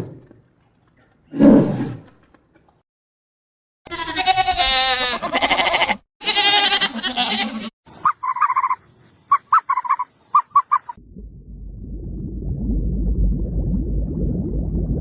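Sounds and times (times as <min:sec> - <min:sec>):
goat bleating: 0:03.9 - 0:07.7.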